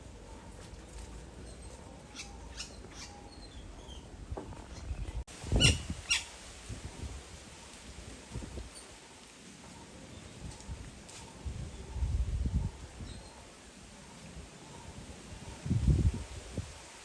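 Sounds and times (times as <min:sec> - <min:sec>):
woodpecker call notes: 0:02.1 - 0:04.0, 0:05.5 - 0:06.3.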